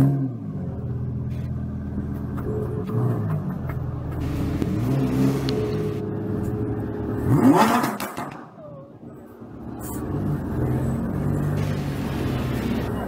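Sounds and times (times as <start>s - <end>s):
sports car engine running: 0.4s - 8.1s, 9.3s - 13.0s
sharp engine rev: 7.2s - 8.3s.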